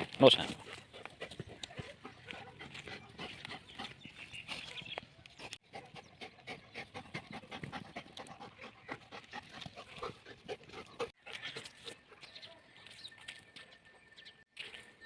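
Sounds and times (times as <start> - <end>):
dog panting: 0.5 - 4.4, 5.4 - 12.2.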